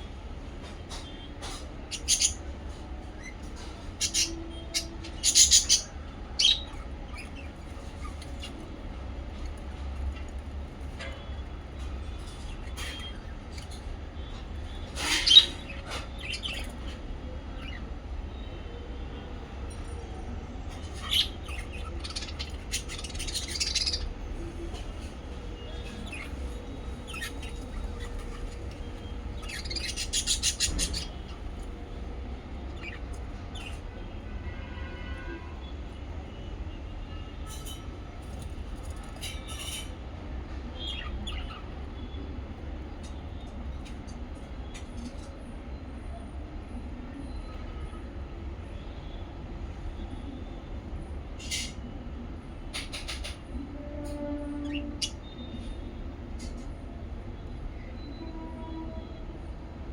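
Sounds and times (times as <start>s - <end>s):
small parrots chirping: 1.9s - 2.4s, 4.0s - 8.8s, 20.9s - 24.2s, 25.5s - 31.7s.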